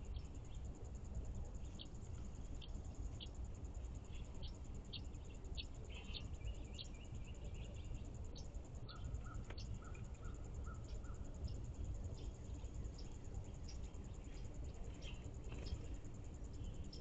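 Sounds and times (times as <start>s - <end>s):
high insect trill: 0.0s - 17.0s
low background rumble: 0.0s - 17.0s
songbirds calling: 0.0s - 17.0s.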